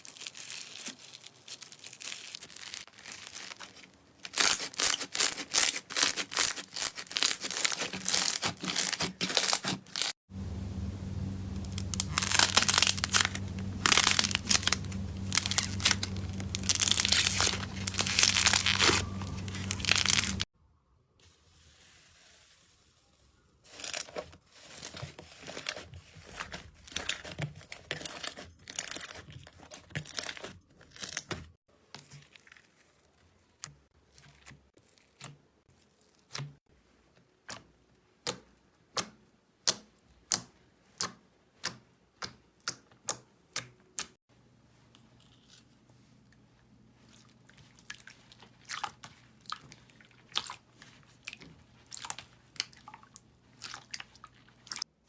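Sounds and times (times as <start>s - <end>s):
slime crackling and crinkling: 0.0s - 20.5s.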